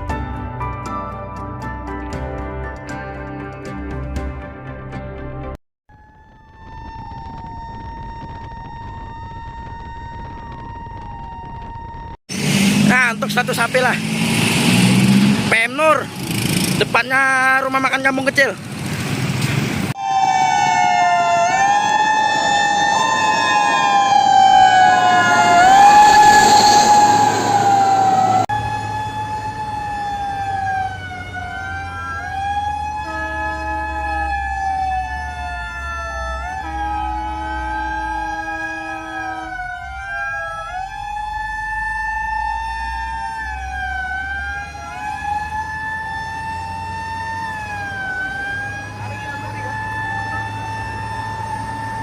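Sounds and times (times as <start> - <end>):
emergency siren wailing: 5.9 - 16.0, 19.9 - 52.0
vehicle and road noise: 6.6 - 52.0
steady horn tone: 33.0 - 34.4, 36.3 - 39.8.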